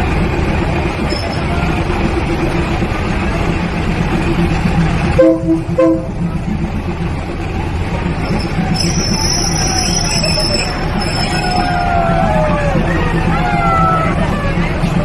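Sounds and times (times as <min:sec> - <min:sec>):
train rumbling on rails: 0:00.0 - 0:15.0
train horn blasts: 0:05.1 - 0:06.3.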